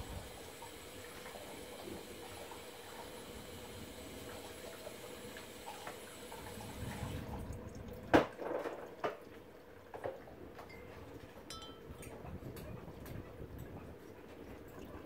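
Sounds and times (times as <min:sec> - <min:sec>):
rain dripping: 0:00.0 - 0:08.2.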